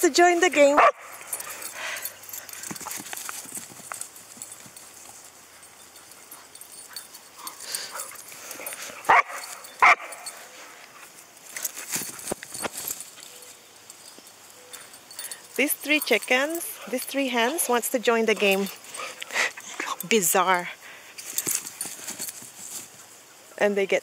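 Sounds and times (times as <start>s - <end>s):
scuffling and light knocks: 0.6s - 20.2s, 21.2s - 23.1s
dog barking: 0.8s - 1.1s, 9.1s - 10.3s.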